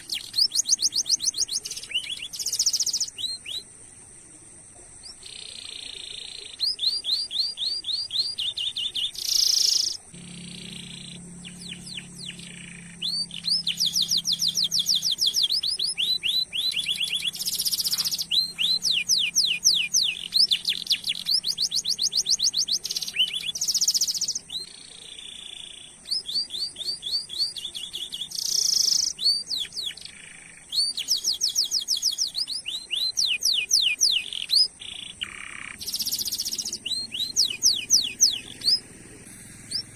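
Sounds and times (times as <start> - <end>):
canary singing fast trills: 0.0 - 3.8, 5.0 - 39.9
short buzzy bird notes: 9.8 - 16.2.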